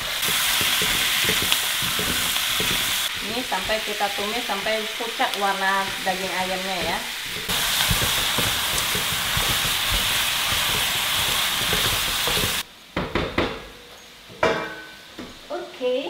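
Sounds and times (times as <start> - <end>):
chicken sizzling in a pan: 0.0 - 12.6.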